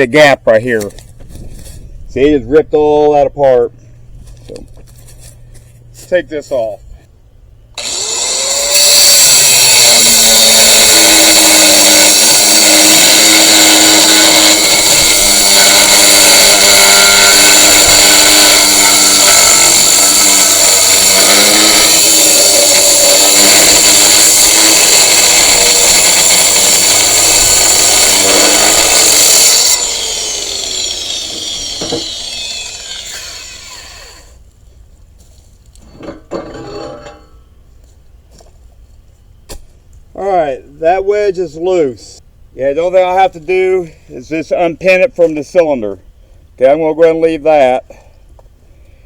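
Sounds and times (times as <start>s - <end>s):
angle grinder cutting steel: 7.8s - 34.4s, 35.9s - 37.3s.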